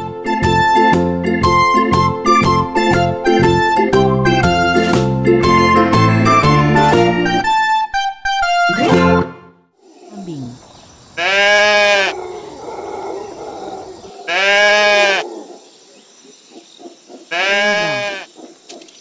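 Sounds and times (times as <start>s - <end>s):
livestock bleating: 11.2s - 12.2s, 14.3s - 15.2s, 17.3s - 18.3s.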